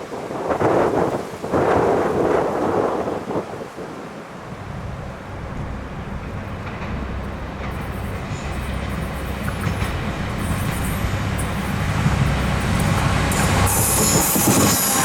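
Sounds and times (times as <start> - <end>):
electric train approaching: 4.4 - 15.0.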